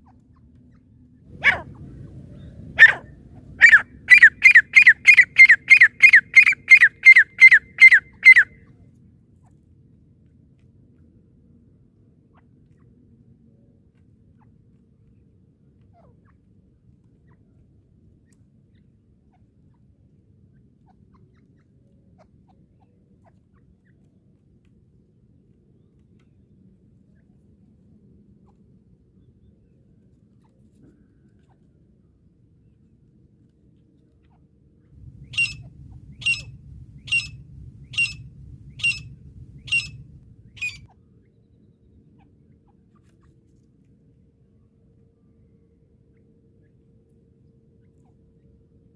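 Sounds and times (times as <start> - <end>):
low steady rumble: 0.0 - 15.9, 24.3 - 48.9
bird chirping notes: 3.6 - 8.4, 35.0 - 40.9.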